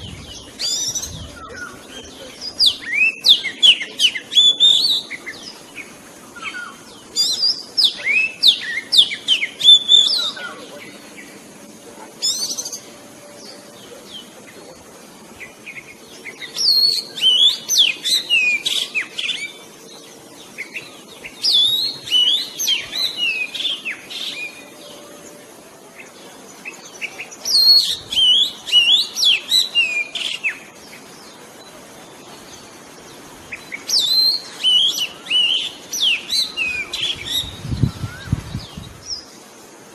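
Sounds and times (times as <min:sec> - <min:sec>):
bird singing whistled trills: 0:00.0 - 0:10.6, 0:15.4 - 0:19.6, 0:20.5 - 0:25.4, 0:26.6 - 0:31.3, 0:33.5 - 0:39.3.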